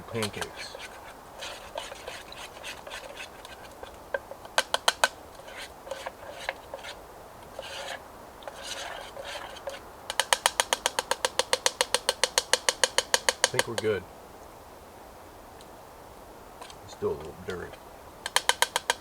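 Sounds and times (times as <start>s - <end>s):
utensil scraping around bowl: 0.1s - 4.0s, 5.4s - 11.0s.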